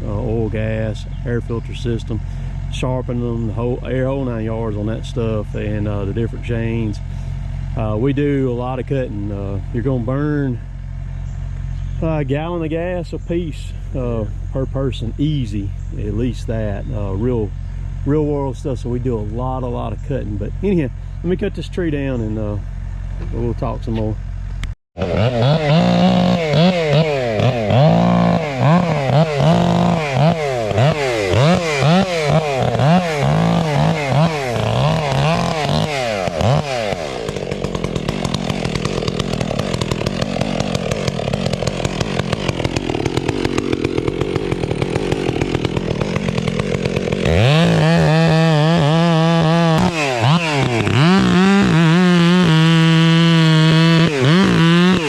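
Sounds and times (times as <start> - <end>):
chainsaw revving: 0.0 - 11.0, 25.0 - 55.0.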